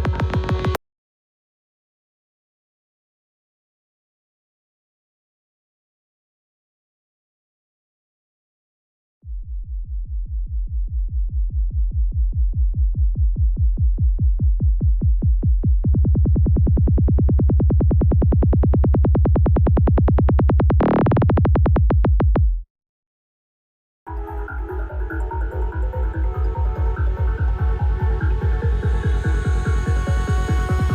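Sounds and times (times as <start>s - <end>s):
psytrance kick and synthesizer bass: 0.0s - 0.8s, 9.3s - 22.6s, 24.1s - 30.9s.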